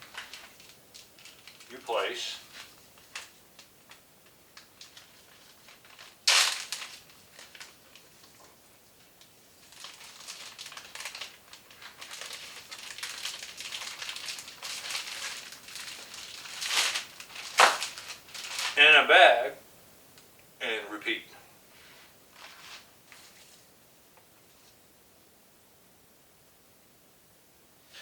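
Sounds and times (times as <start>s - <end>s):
bag crinkling and rustling: 0.0s - 18.8s, 21.8s - 23.7s.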